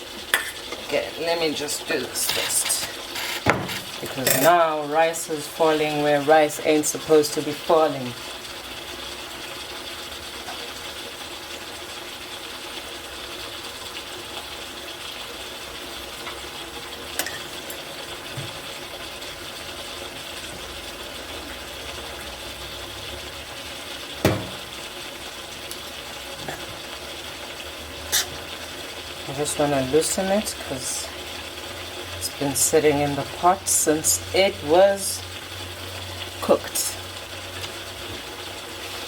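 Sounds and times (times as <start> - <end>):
steady cooking hiss: 0.0 - 39.0
utensil knocking against pot: 24.2 - 24.7.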